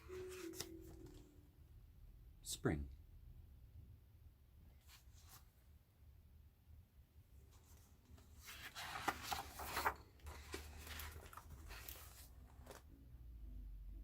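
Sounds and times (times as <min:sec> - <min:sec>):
book pages turning: 0:00.0 - 0:01.2, 0:07.5 - 0:12.9.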